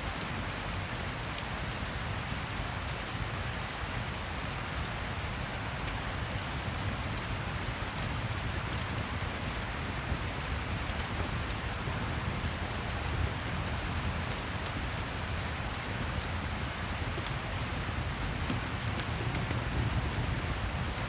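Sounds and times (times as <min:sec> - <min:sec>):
fireplace crackling: 0:00.0 - 0:01.4
steady rain: 0:00.0 - 0:21.0.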